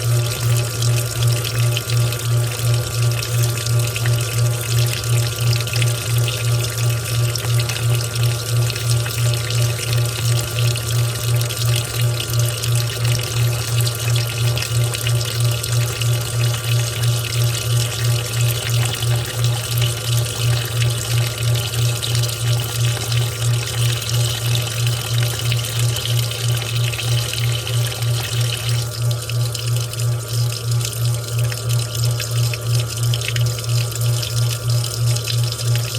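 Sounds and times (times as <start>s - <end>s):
water sloshing in washing machine: 0.0s - 35.9s.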